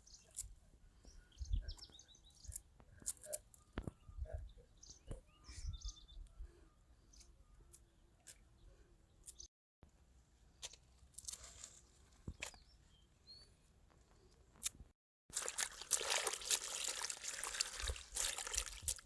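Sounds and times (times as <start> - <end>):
birds chirping faintly: 0.0 - 9.5.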